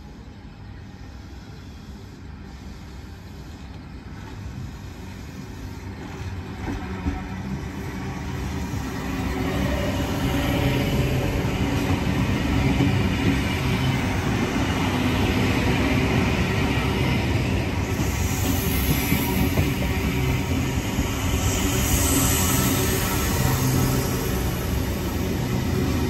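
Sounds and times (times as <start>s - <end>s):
train wheels rumbling on rail: 0.0s - 26.0s
high hiss: 7.8s - 26.0s.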